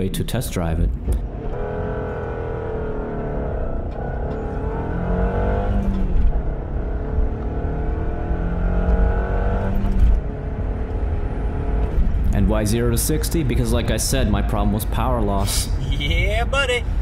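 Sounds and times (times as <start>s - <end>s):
car engine accelerating hard: 1.1s - 15.7s.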